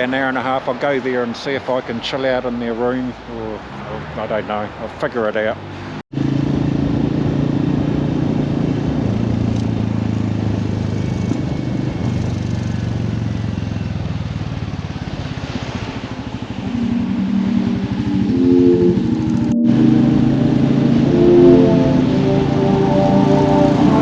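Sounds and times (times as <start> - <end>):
motorcycle engine running: 6.2 - 15.3.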